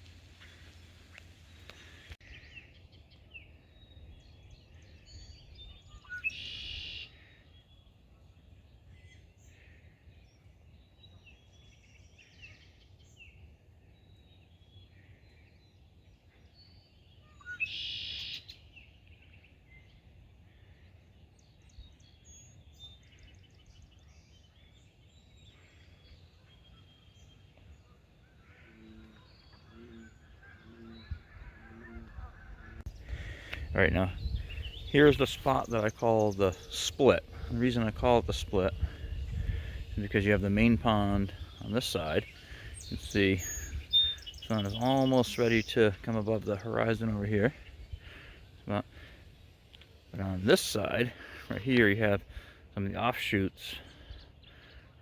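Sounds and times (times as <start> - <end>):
harsh bird calls: 0.0 - 55.0
small birds chirping: 0.0 - 55.0
geese honking: 28.0 - 33.6.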